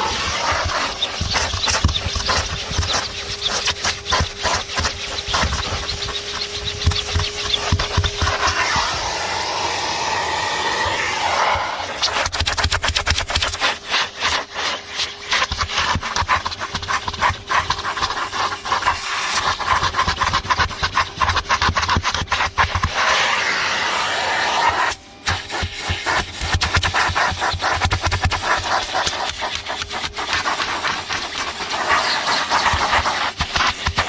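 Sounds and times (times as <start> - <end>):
vacuum cleaner motor whine: 0.0 - 12.3, 22.9 - 26.4
vacuum nozzle scraping carpet: 0.0 - 34.0.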